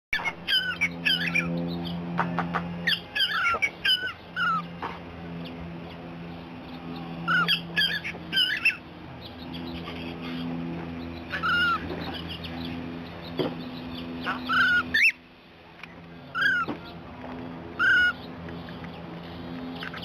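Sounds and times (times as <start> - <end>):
steady low hum: 0.2 - 20.0
cockatiel chirping: 2.9 - 4.6, 7.3 - 8.8.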